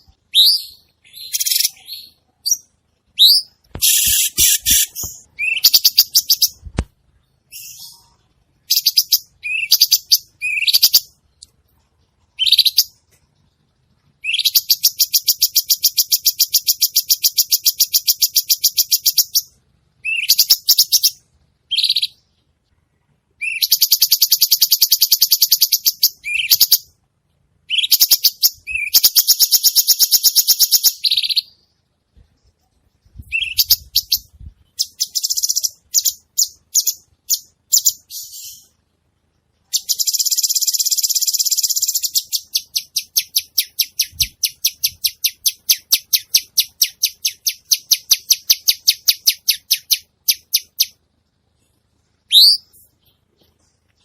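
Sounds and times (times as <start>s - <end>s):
bird singing with rattling trills: 0.0s - 6.6s, 7.5s - 11.3s, 23.4s - 26.9s, 33.0s - 38.7s, 39.7s - 51.0s.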